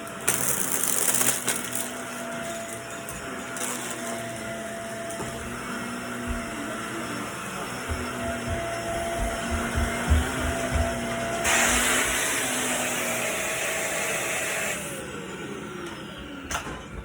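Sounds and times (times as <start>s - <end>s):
vacuum cleaner running: 0.0s - 17.0s
low bumps: 7.8s - 11.5s.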